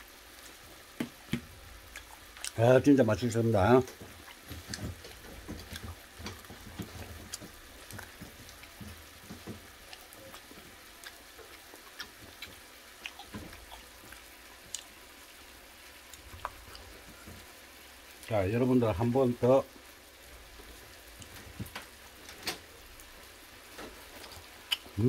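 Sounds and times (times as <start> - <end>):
man chewing wetly: 0.8 - 2.6, 3.9 - 15.2, 16.0 - 17.5, 24.0 - 25.0.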